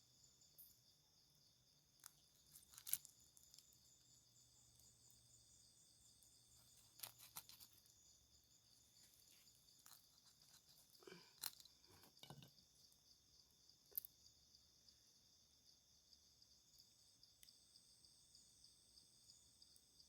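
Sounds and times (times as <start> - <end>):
high-pitched insect chorus: 0.0 - 20.0
handling clicks and crackles: 2.0 - 3.8, 6.7 - 7.8.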